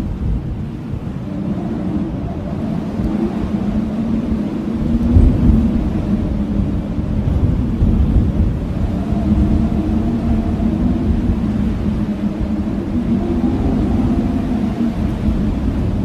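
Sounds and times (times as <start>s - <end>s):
blizzard wind howling: 0.0s - 16.0s.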